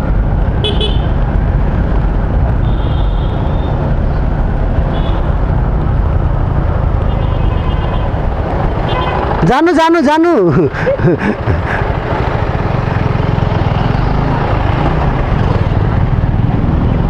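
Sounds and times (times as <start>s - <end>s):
wind rush: 0.0s - 10.0s
motorcycle engine: 0.0s - 17.0s.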